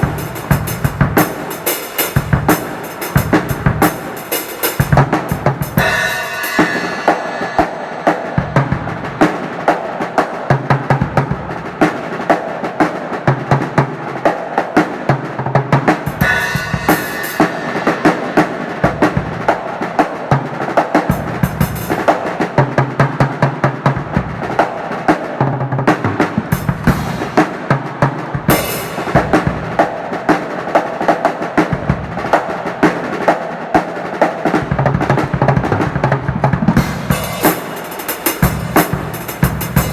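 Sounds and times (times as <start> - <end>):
cymbal crashes: 0.0 - 9.2, 16.1 - 19.6, 28.5 - 29.7, 36.8 - 39.9
drum kit groove: 0.0 - 39.9.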